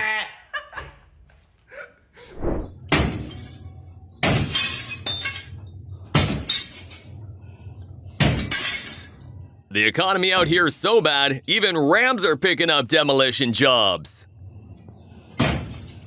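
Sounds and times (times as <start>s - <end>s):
glass shattering: 3.1s - 5.6s, 8.3s - 9.2s.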